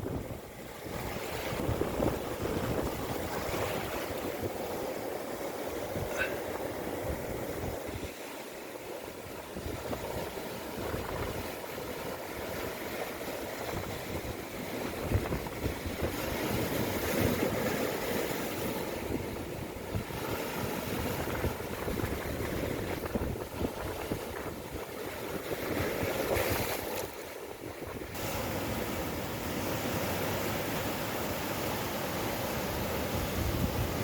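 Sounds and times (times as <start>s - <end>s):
wind buffeting microphone: 0.0s - 4.8s, 9.1s - 12.8s, 13.4s - 30.5s, 32.7s - 34.0s
rough surf: 0.0s - 34.0s.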